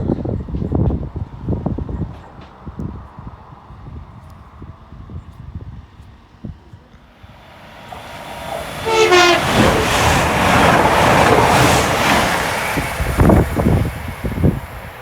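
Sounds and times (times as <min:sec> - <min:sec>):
train passing at speed: 0:07.0 - 0:15.0
train horn: 0:07.3 - 0:13.8
train wheel thumps: 0:07.4 - 0:15.0.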